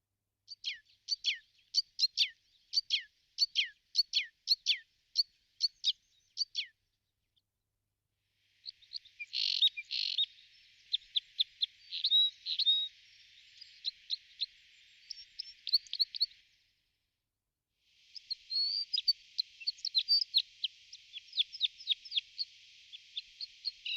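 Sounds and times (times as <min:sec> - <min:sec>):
small birds chirping: 0:00.5 - 0:07.4, 0:08.4 - 0:16.8, 0:17.9 - 0:23.9
faint hiss: 0:08.1 - 0:23.9.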